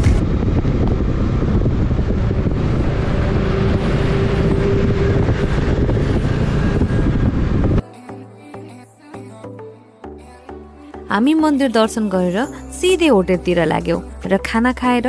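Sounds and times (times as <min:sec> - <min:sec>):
motorbike engine and road noise: 0:00.0 - 0:07.8
wind rushing over microphone: 0:00.0 - 0:07.8.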